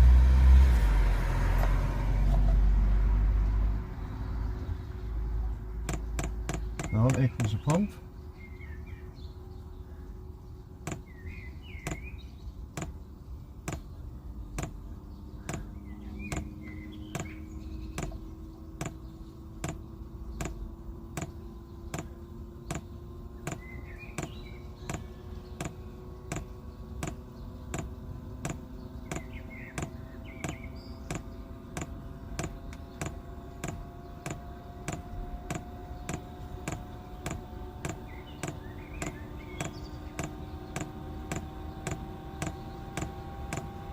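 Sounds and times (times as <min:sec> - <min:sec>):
fuel pump ticking: 0:05.8 - 0:07.8, 0:10.8 - 0:11.1, 0:11.8 - 0:12.1, 0:12.7 - 0:43.9.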